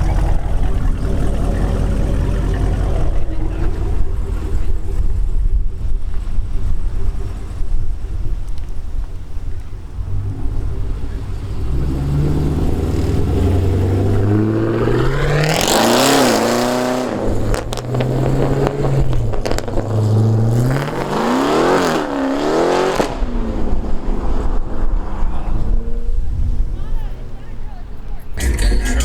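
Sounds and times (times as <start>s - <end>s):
low engine rumble: 0.0s - 15.9s, 25.2s - 29.0s
car engine revving: 0.0s - 26.2s, 28.4s - 29.0s.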